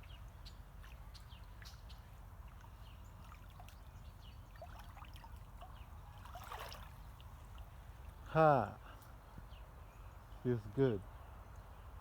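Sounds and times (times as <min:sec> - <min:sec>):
light water splashes: 0:00.0 - 0:09.1
small creek trickling: 0:00.0 - 0:10.3.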